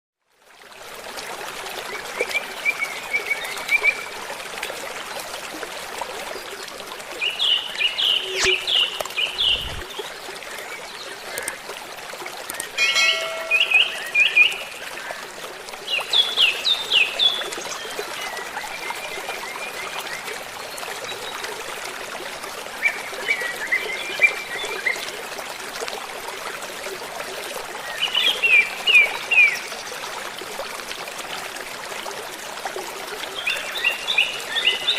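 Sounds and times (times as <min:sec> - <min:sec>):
running water: 0:00.3 - 0:34.9
songbirds chirping: 0:12.6 - 0:18.0.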